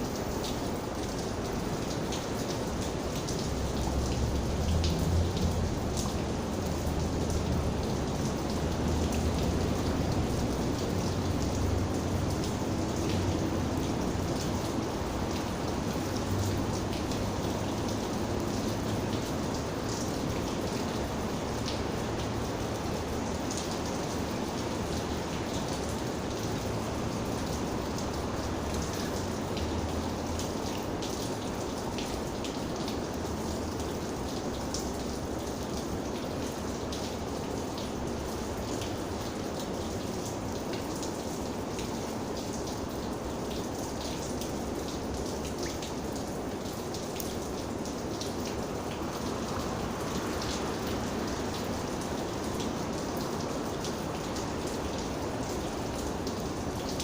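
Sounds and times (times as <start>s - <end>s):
raindrops ticking on a surface: 0.0s - 57.0s
steady rain falling: 0.0s - 57.0s.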